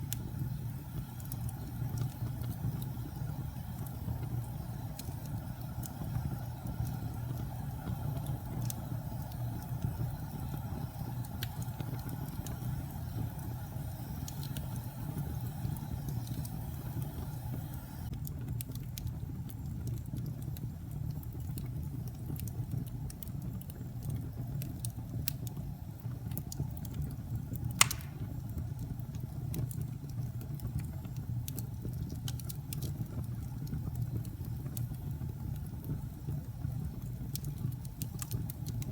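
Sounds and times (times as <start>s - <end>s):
fire crackles: 0.0s - 38.9s
wood fire rumbling: 0.0s - 38.9s
sharp wood pop: 27.8s - 28.4s.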